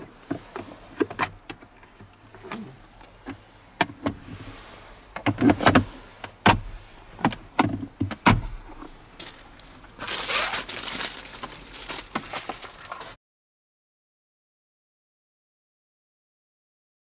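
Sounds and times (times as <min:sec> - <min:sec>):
rustling hiss: 0:08.4 - 0:13.2.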